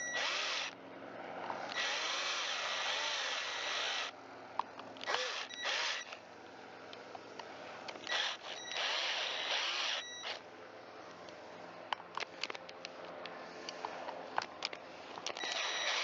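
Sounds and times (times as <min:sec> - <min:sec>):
cordless power driver whirring: 0:00.0 - 0:00.8, 0:01.6 - 0:04.2, 0:05.0 - 0:06.2, 0:07.9 - 0:10.5, 0:14.6 - 0:16.0.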